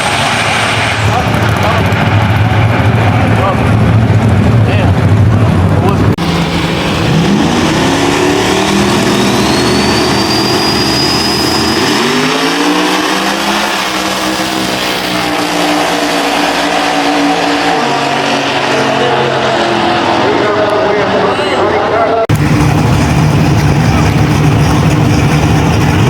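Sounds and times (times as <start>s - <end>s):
car engine accelerating hard: 0.0s - 26.0s
turbo whistle: 7.6s - 12.8s.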